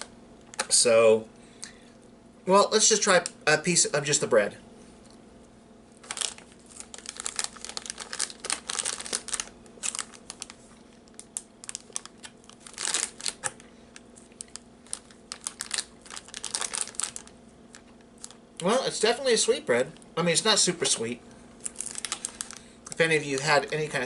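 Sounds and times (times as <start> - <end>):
plastic wrapper crinkling: 5.9 - 18.7, 21.6 - 24.0.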